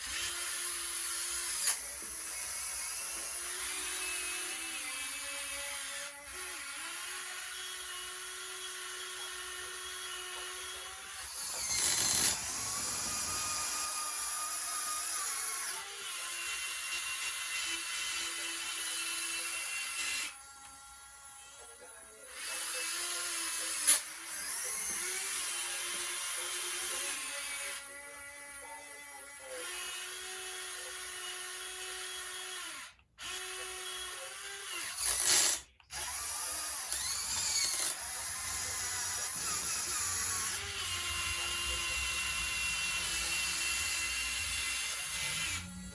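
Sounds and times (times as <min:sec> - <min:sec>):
hydraulic pump and motors whining: 0:08.3 - 0:16.0, 0:29.6 - 0:45.9.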